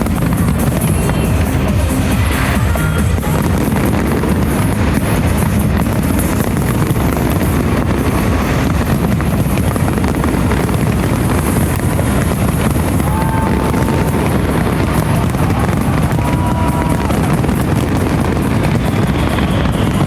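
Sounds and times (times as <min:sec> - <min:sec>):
fireworks bursts with crackle: 0:00.0 - 0:20.0
wind buffeting microphone: 0:00.0 - 0:20.0.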